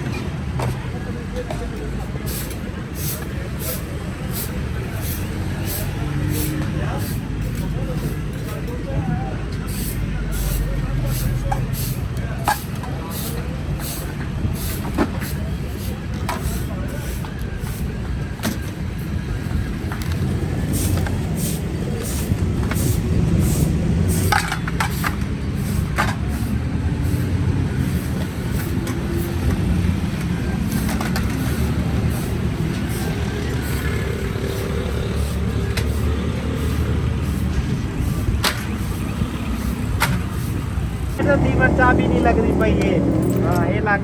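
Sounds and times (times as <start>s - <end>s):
vehicle engines running: 0.0s - 44.0s
indistinct voices: 20.7s - 44.0s.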